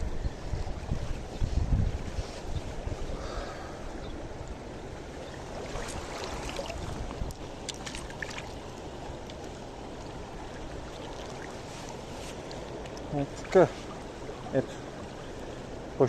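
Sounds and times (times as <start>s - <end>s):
river water rushing: 2.8s - 16.0s.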